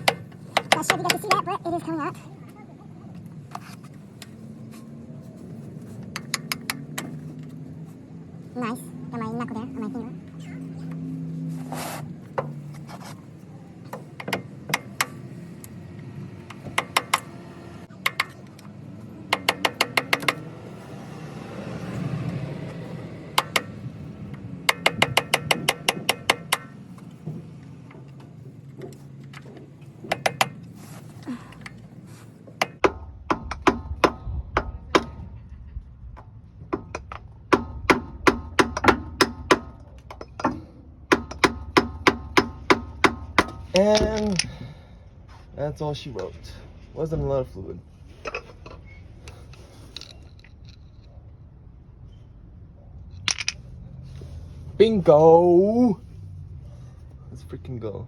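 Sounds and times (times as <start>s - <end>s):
metal-on-metal taps and clicks: 0.0s - 1.5s, 6.0s - 7.5s, 13.9s - 15.7s, 16.5s - 17.3s, 17.9s - 18.7s, 19.3s - 20.4s, 23.4s - 27.1s, 27.9s - 30.7s, 32.6s - 35.3s, 36.2s - 44.6s, 48.2s - 50.8s.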